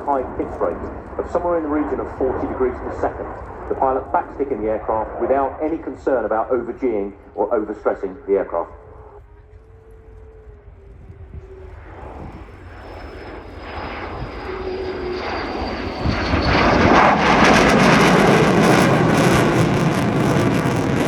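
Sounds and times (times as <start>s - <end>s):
jet engines roaring: 0.0s - 21.0s
high whine falling in pitch: 8.2s - 21.0s.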